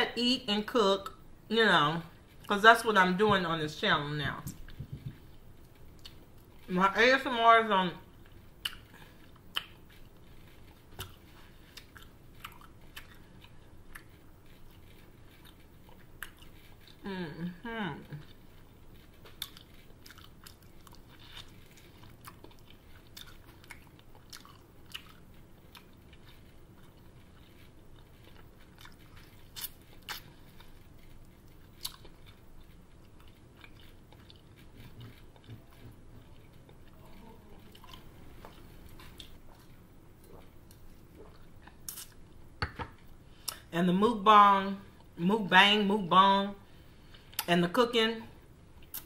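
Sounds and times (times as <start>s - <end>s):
person chewing and biting: 4.5s - 6.7s, 8.1s - 17.0s, 18.2s - 43.7s.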